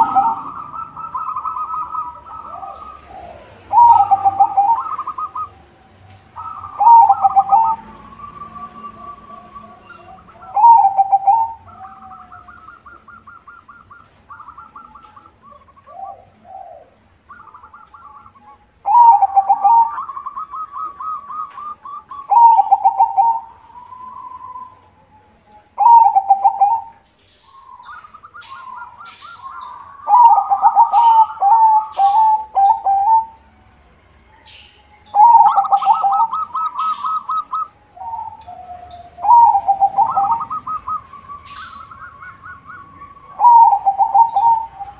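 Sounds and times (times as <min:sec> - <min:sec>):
soft trilled dove coos: 0:00.0 - 0:05.5, 0:06.4 - 0:07.8, 0:08.9 - 0:24.8, 0:35.2 - 0:41.9, 0:43.0 - 0:44.9
dove staccato cooing: 0:00.0 - 0:24.8, 0:25.8 - 0:33.4, 0:35.2 - 0:44.9.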